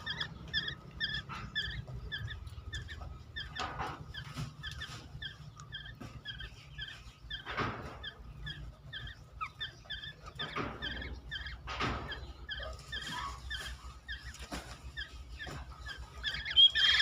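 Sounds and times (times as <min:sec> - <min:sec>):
bird chirping in quick notes: 0:00.0 - 0:17.0
harsh rasping bird calls: 0:00.0 - 0:17.0.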